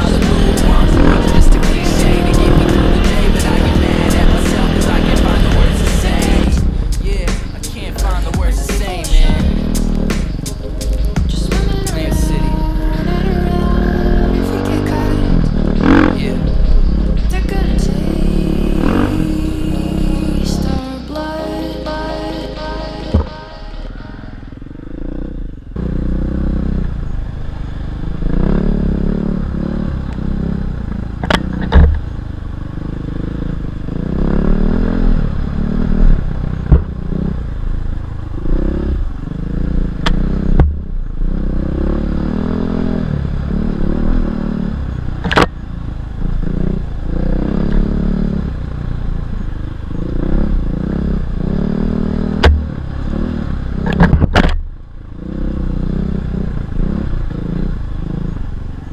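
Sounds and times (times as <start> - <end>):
motorcycle engine revving: 0.0 - 58.9
sharp knocks from motorcycle: 31.2 - 32.1, 36.6 - 37.0, 40.0 - 40.9, 45.2 - 45.6, 52.4 - 52.8, 53.8 - 54.6.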